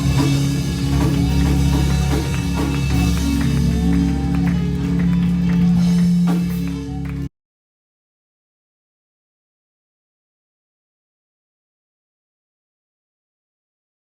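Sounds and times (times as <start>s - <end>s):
light drum and cymbal hits: 0.0s - 4.1s
band sustained chords: 0.0s - 7.3s.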